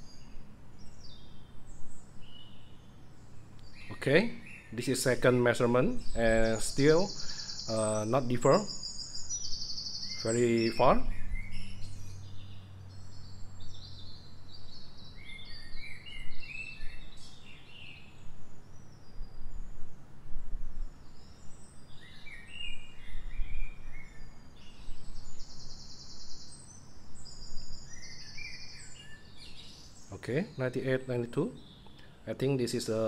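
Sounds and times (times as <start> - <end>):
birds chirping: 0.0 - 33.0
low background noise: 0.0 - 33.0.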